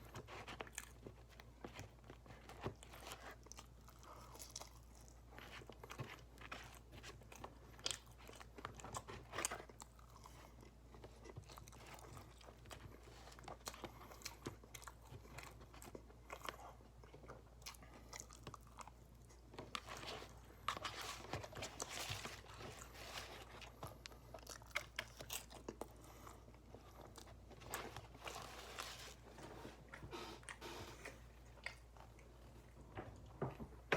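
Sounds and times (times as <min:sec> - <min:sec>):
person chewing food: 0:00.0 - 0:33.9.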